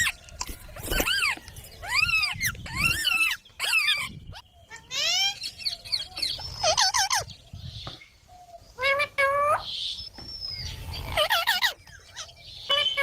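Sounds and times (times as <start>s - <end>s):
parrot chirping: 0.0s - 7.4s, 10.6s - 13.0s.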